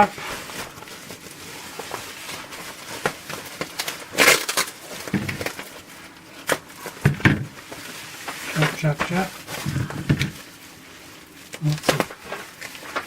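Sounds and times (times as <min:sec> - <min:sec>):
scissors cutting packaging: 0:00.0 - 0:10.6, 0:11.2 - 0:13.0
wrapping rustling: 0:00.0 - 0:13.0.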